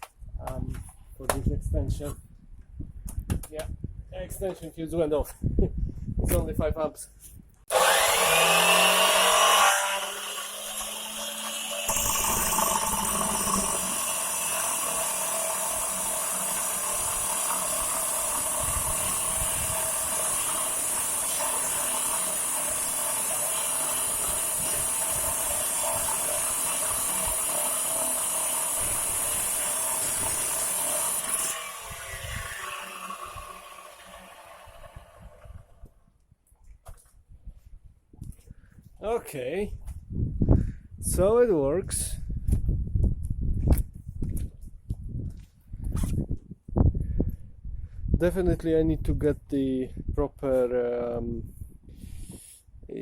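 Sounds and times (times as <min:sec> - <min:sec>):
angle grinder grinding marble: 0:07.7 - 0:35.6.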